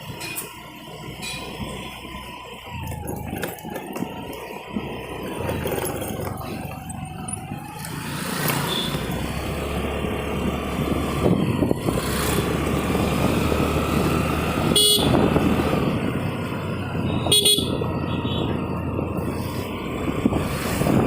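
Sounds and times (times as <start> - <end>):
scooter motor and wind rush: 0.0 - 21.0
scooter horn toot: 8.6 - 9.2, 14.6 - 15.4, 17.0 - 18.6.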